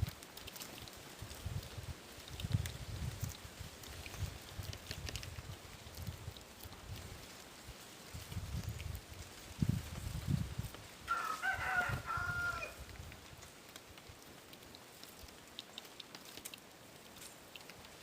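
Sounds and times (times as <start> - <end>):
faint ticks: 0.0 - 7.4, 12.8 - 18.0
rooster crowing: 11.1 - 12.8.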